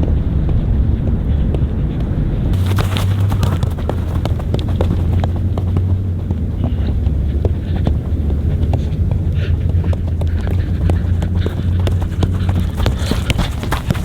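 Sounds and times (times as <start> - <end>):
wind rumble on microphone: 0.0 - 14.0
feet tapping a football: 2.5 - 14.0.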